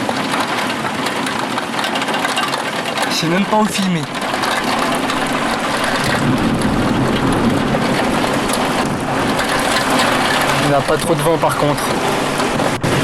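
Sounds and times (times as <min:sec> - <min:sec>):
heavy rain pouring: 0:00.0 - 0:13.0
low rumble of thunder: 0:00.0 - 0:13.0.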